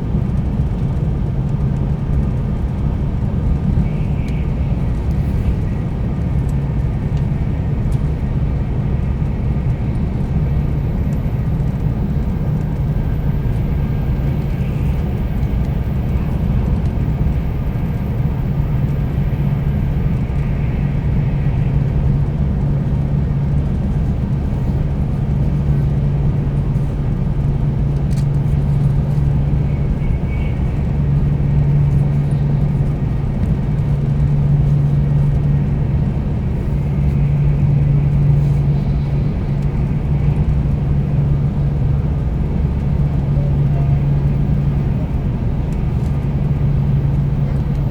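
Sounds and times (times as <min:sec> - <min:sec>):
train interior rumble: 0:00.0 - 0:47.9.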